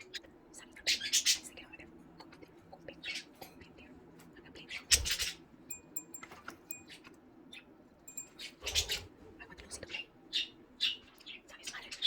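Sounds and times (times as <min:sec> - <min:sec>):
short ringing pips: 0:05.7 - 0:07.1, 0:08.1 - 0:09.0.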